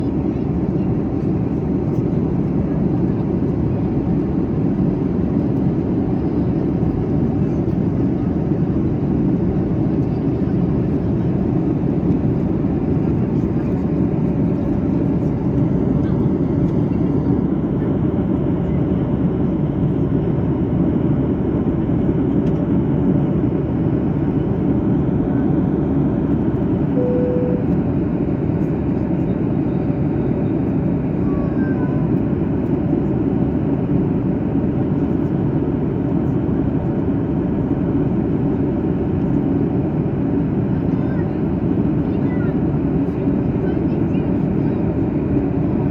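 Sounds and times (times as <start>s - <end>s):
airplane cabin airflow and engine drone: 0.0s - 45.9s
short faint tone: 27.0s - 28.0s.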